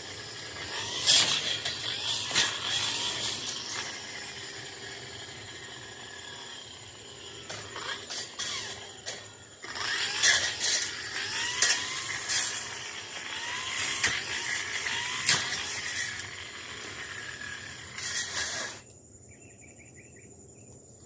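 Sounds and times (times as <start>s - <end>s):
brush cutter engine revving: 0.0s - 18.8s
crackling hits cutting brush: 0.6s - 4.5s, 13.8s - 16.3s.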